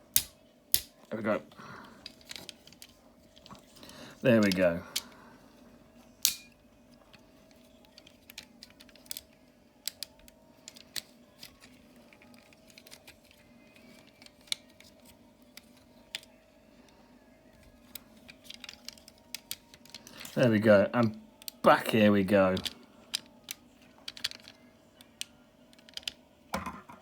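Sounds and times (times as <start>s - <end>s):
plastic toy parts clicking: 0.1s - 0.9s, 2.0s - 3.5s, 7.1s - 16.3s, 17.6s - 20.4s, 21.4s - 21.7s, 22.5s - 26.2s.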